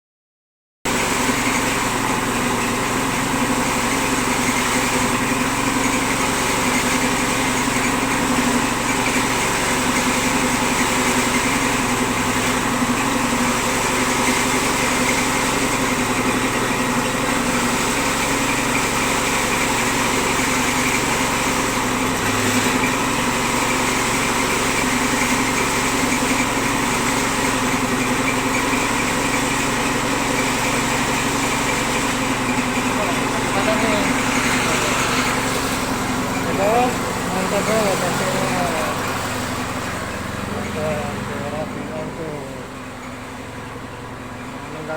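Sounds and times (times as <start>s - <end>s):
machine humming and hissing: 0.9s - 44.9s.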